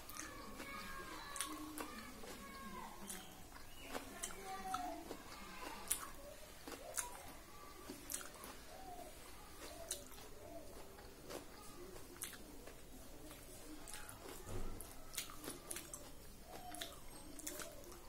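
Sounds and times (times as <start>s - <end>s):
faint bird calls: 0.0s - 11.9s
eating clicks and smacks: 0.0s - 18.0s.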